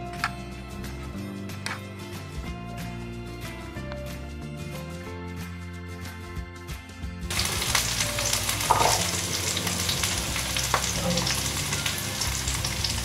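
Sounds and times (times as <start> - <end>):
background music: 0.0 - 13.0
vegetables sizzling in oil: 7.3 - 13.0.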